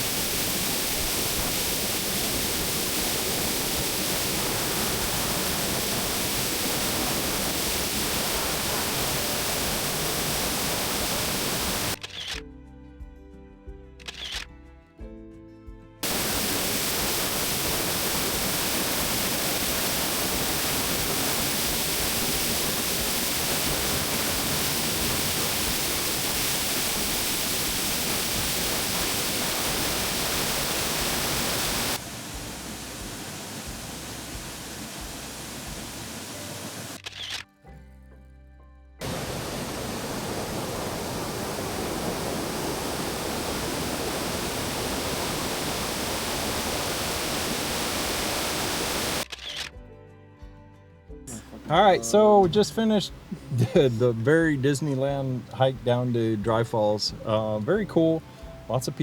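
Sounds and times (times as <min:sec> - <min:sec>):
waterfall roaring: 0:00.0 - 0:12.0, 0:16.0 - 0:37.0, 0:39.0 - 0:49.2.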